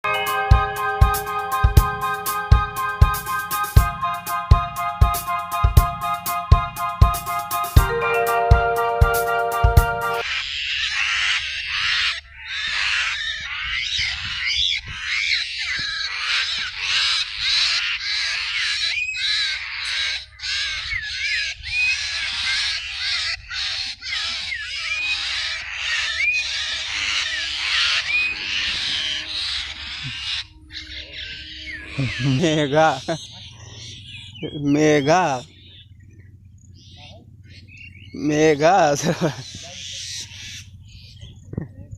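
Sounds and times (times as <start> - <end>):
small bird squawking in distress: 10.3 - 35.8, 39.4 - 41.4
short rising bird chirps: 24.4 - 38.2.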